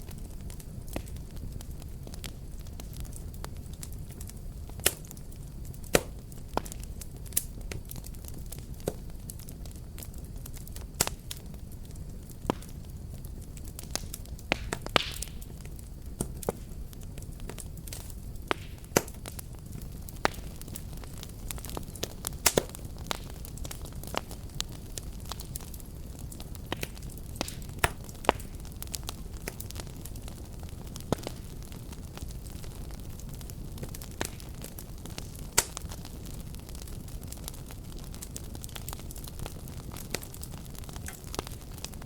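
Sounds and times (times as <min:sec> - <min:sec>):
fireplace fire crackling: 0:00.0 - 0:42.0.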